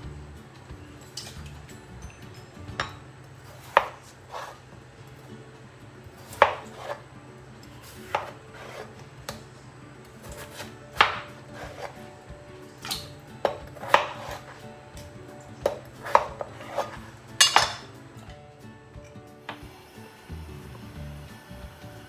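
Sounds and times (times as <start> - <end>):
knife slicing potatoes: 3.4 - 4.7, 6.1 - 7.1, 7.7 - 9.5, 10.2 - 12.2, 12.8 - 17.9.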